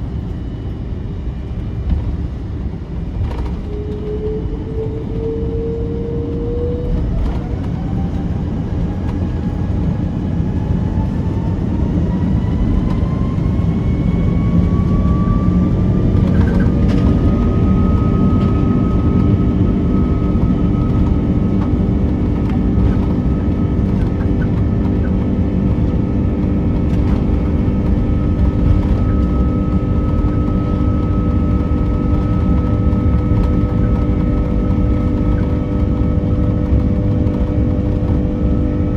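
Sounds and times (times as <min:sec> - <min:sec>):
jet engine whine: 0:00.0 - 0:38.9
heavy engine rumble: 0:14.4 - 0:38.5.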